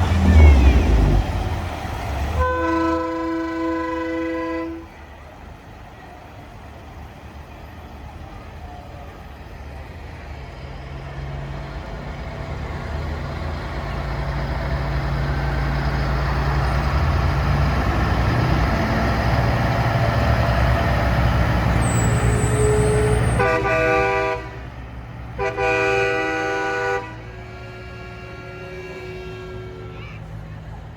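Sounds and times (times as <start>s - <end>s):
truck horn blasts: 0.0s - 5.0s, 21.7s - 30.4s
truck engine rumbling: 0.0s - 30.9s.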